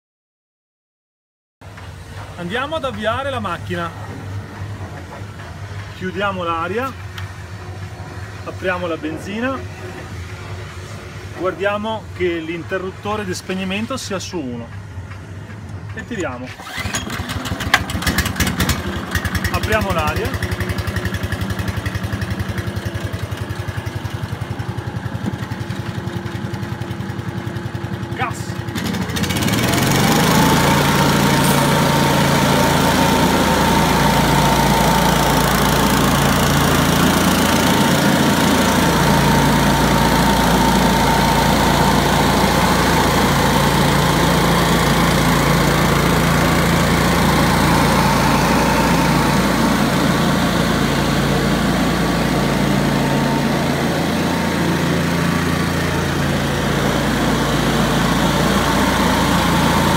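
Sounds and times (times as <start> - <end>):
blower engine running: 15.6 - 59.9
air rushing from blower: 27.2 - 59.9
high whine: 45.3 - 59.9.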